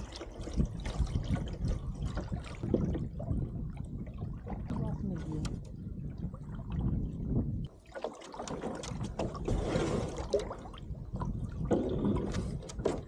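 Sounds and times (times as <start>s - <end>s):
paddle splashes and drips: 0.0s - 13.0s.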